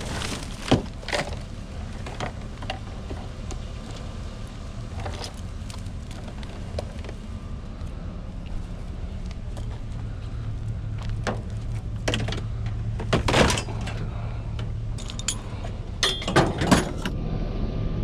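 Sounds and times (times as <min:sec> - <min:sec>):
low engine hum: 0:00.0 - 0:18.0
scrap metal clanking: 0:15.0 - 0:17.1.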